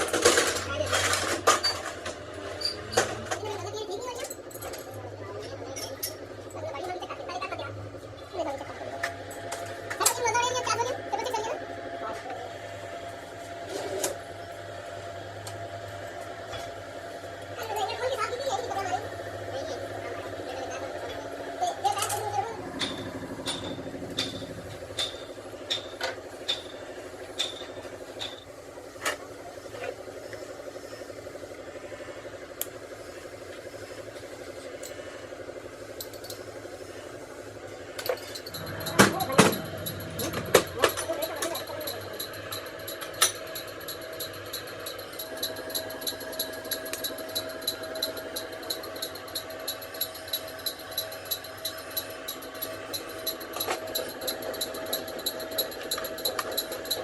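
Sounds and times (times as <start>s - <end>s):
pulsing engine running: 0.0s - 57.0s
sharp metallic clinks: 38.0s - 57.0s.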